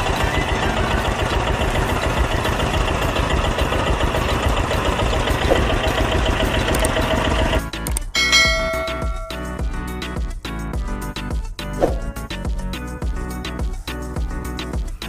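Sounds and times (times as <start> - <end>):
small tractor engine running: 0.0 - 7.8.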